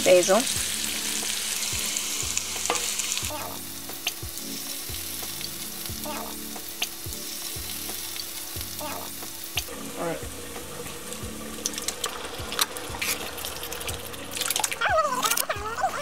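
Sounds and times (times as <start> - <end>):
meat sizzling in skillet: 0.0 - 16.0
spatula stirring: 2.3 - 3.2.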